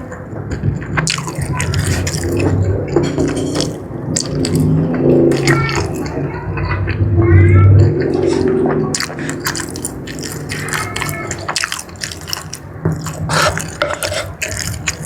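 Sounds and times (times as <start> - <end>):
biting and chewing: 0.0 - 6.3, 7.8 - 15.0
wet mouth clicks and smacks: 3.6 - 6.1, 9.0 - 15.0.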